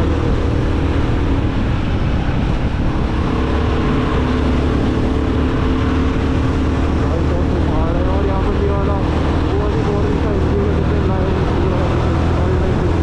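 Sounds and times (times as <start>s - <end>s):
motorcycle engine cruising: 0.0s - 13.0s
wind noise: 0.0s - 13.0s.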